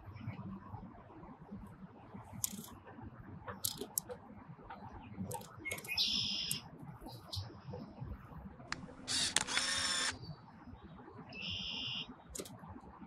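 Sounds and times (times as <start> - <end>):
short high bird calls: 5.7 - 6.6, 11.4 - 12.1.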